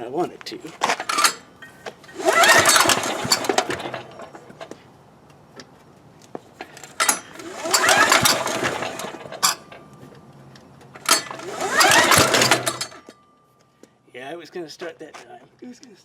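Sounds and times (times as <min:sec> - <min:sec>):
engine cranking with whir: 0:00.7 - 0:04.8, 0:06.5 - 0:13.2.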